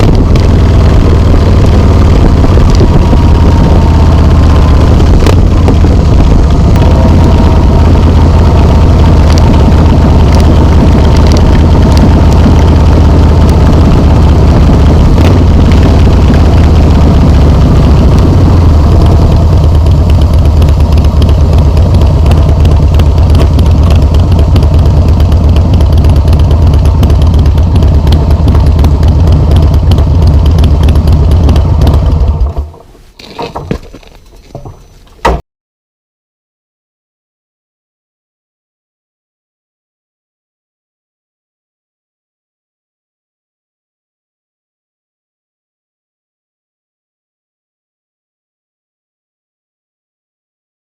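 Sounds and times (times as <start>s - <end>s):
motorcycle engine idling: 0.0s - 35.4s.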